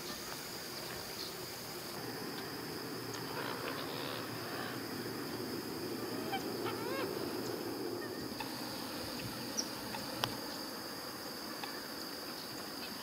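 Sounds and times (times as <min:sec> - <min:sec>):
insect drone: 0:00.0 - 0:13.0
birds calling: 0:00.9 - 0:10.8.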